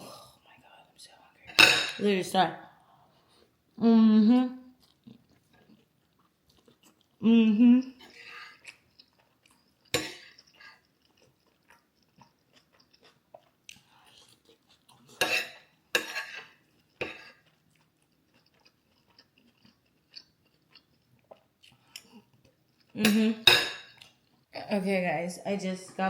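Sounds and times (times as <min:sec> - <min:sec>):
person chewing crunchy food: 0:04.7 - 0:23.0.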